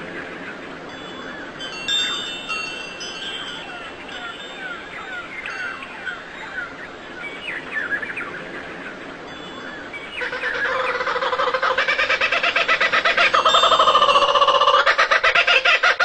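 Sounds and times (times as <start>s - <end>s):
small birds chirping: 0.0s - 15.9s
pulsing fowl-like call: 9.6s - 16.0s.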